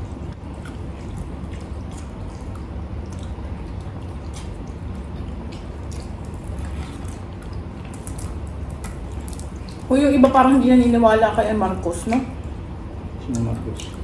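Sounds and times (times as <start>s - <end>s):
air conditioner humming: 0.0s - 14.0s
wet chewing and lip smacks: 0.5s - 9.9s.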